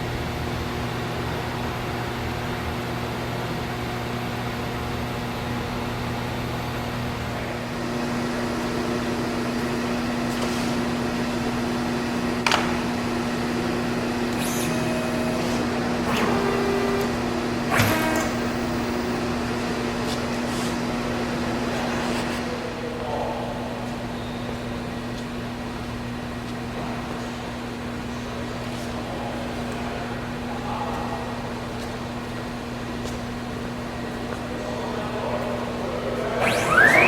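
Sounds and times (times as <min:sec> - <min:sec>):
router machine electric hum: 0:00.8 - 0:22.6, 0:36.2 - 0:37.0.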